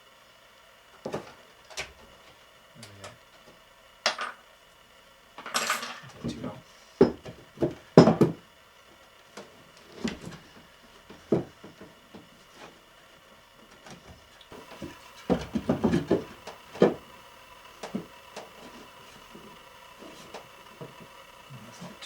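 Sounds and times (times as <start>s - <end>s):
wooden knocks and clunks: 7.0s - 8.4s, 11.1s - 12.3s, 13.7s - 21.2s.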